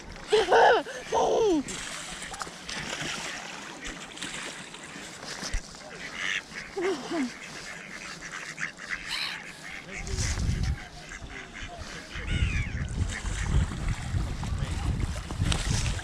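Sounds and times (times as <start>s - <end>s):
ducks and geese calling: 3.2s - 14.1s
wind rumbling on microphone: 9.9s - 16.0s.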